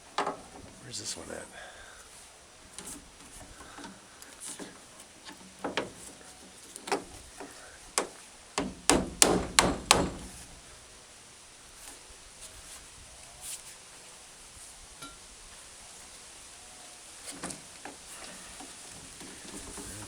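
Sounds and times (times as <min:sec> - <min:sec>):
hammer tapping a peg: 0:08.6 - 0:10.3.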